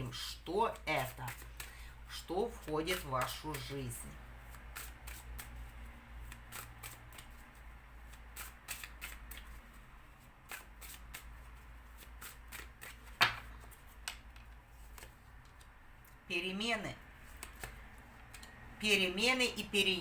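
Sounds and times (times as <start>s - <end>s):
cards being shuffled: 0.2s - 16.2s, 17.0s - 18.6s.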